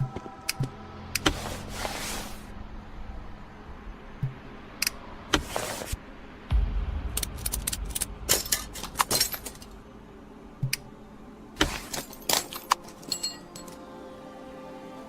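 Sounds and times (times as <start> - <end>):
low rumble: 6.3 - 11.6.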